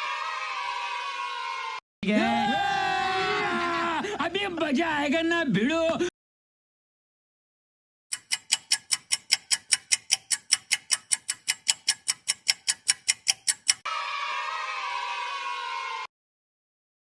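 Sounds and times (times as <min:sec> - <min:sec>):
fast clock ticking: 0:08.1 - 0:13.9.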